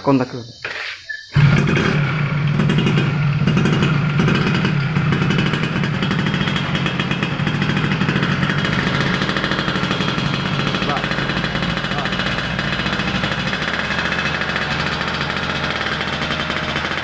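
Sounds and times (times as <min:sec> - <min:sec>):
motorcycle engine running: 0:01.4 - 0:17.0.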